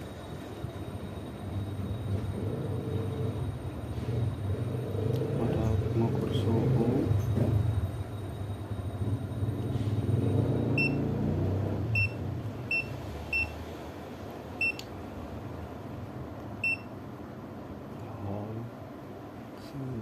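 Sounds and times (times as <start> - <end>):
multimeter high-pitched beeps: 7.2 - 11.1, 11.9 - 13.6, 14.6 - 14.8, 16.6 - 16.9.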